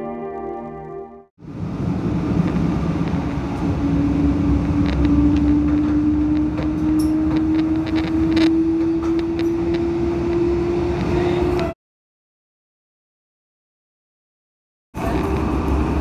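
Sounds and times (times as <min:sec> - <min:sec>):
rising whine: 0:00.0 - 0:11.8
train rumble from inside: 0:01.4 - 0:11.7, 0:15.0 - 0:16.0.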